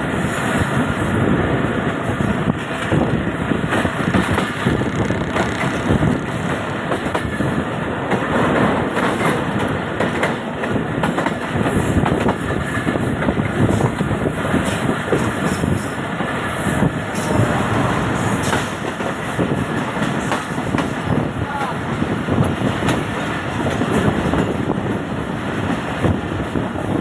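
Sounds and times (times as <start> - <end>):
train rushing noise: 0.0 - 27.0
wheels knocking on rails: 2.6 - 21.3.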